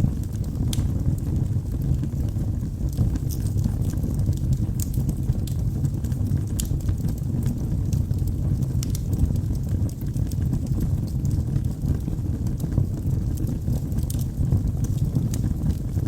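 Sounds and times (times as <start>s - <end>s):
low rumble of flames: 0.0s - 16.0s
wood crackling and popping: 0.0s - 16.0s.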